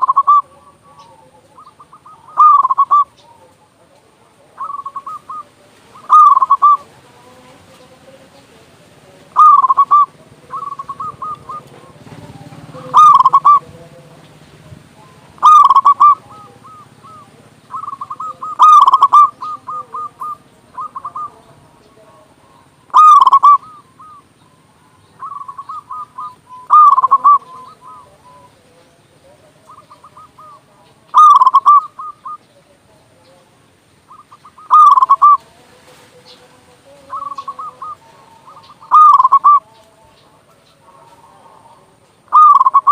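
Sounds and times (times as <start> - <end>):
dove cooing: 0.0 - 42.9.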